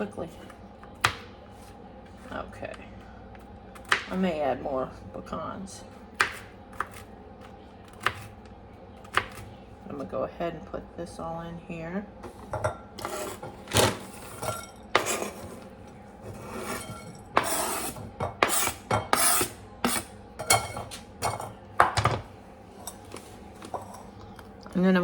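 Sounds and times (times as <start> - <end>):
knife scraping cutting board: 12.2 - 21.0.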